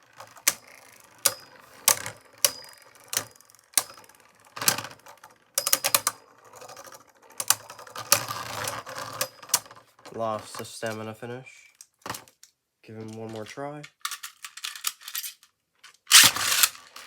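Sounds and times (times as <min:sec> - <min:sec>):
spinning tops clashing: 0:16.1 - 0:17.0.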